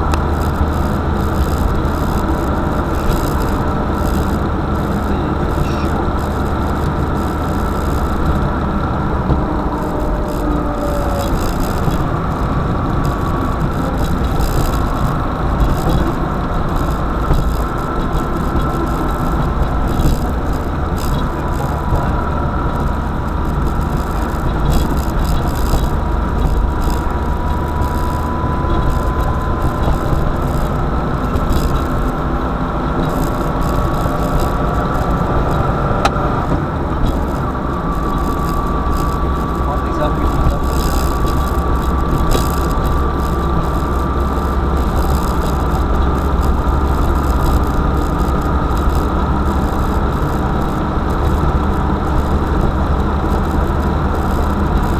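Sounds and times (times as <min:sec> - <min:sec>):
car engine and road noise: 0:00.0 - 0:54.9.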